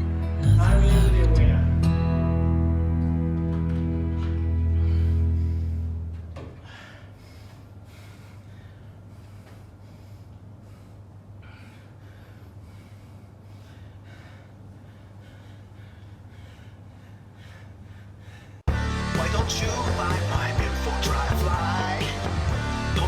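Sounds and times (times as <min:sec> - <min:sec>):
steady low hum: 0:00.0 - 0:23.0
person breathing heavily: 0:04.7 - 0:18.8.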